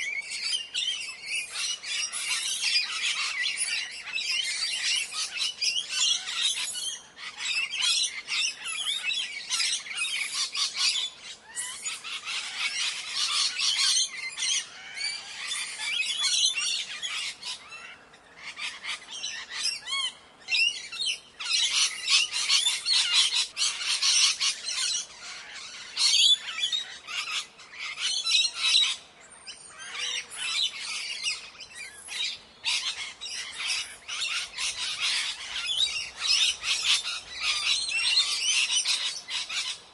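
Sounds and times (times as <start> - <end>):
parrots squawking: 32.1 - 39.8.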